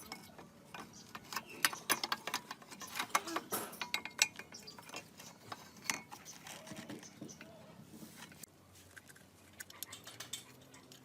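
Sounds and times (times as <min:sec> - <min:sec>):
metal parts clinking: 0:00.0 - 0:07.4.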